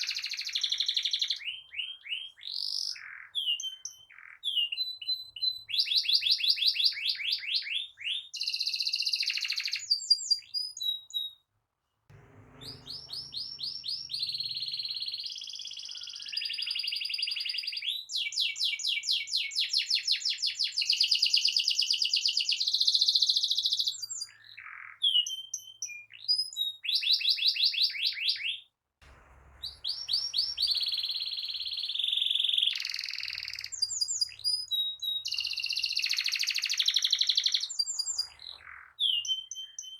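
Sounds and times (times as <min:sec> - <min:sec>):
canary singing trills: 0:12.1 - 0:18.2, 0:29.5 - 0:39.9.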